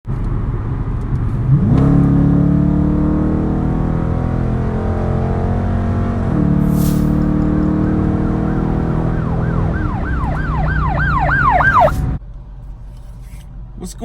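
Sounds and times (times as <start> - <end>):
car engine revving: 1.1 - 12.2.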